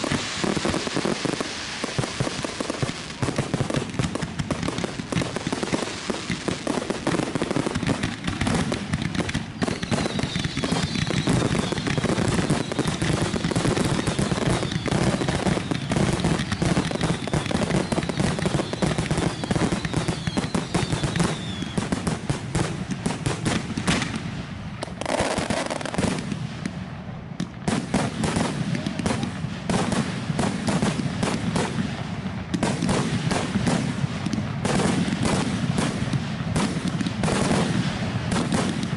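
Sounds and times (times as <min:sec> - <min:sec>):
falling firework whistles: 0:00.0 - 0:07.7, 0:08.4 - 0:22.6
fireworks bangs and crackling: 0:00.0 - 0:38.9.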